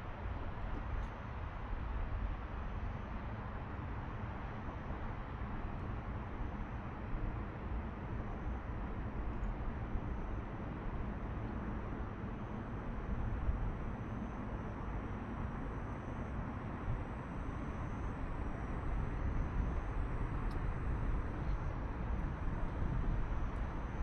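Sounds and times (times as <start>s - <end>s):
wind rumbling on microphone: 18.2s - 24.0s.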